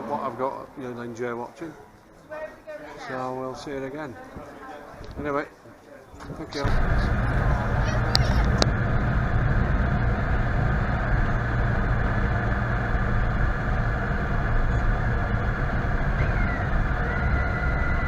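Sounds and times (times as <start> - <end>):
high whine sliding down: 6.6 - 18.0
vehicle running rumble: 6.6 - 18.0.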